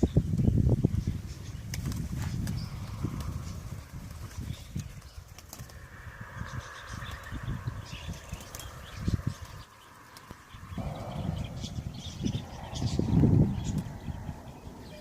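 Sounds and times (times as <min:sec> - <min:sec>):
bird wings flapping: 0:01.6 - 0:06.0, 0:06.8 - 0:14.0
low thuds: 0:10.8 - 0:14.3.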